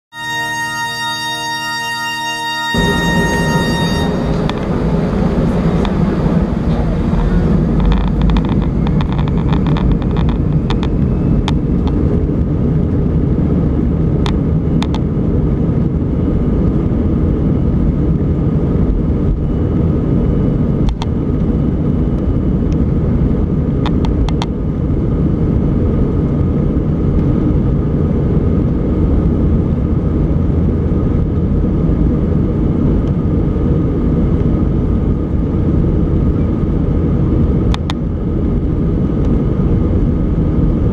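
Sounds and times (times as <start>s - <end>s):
faint high whine: 0.1s - 17.8s
jet engine rumble: 2.3s - 40.9s.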